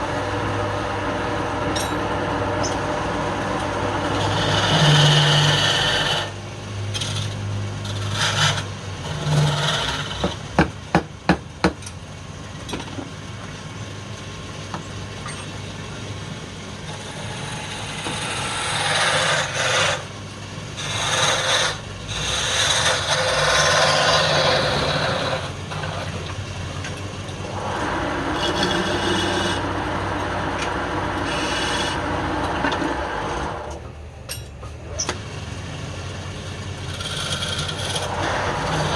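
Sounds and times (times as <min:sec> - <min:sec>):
wood rasping and rubbing: 0:03.8 - 0:06.4, 0:07.0 - 0:10.4, 0:16.9 - 0:20.1, 0:20.8 - 0:26.1, 0:27.5 - 0:33.7, 0:36.8 - 0:38.9.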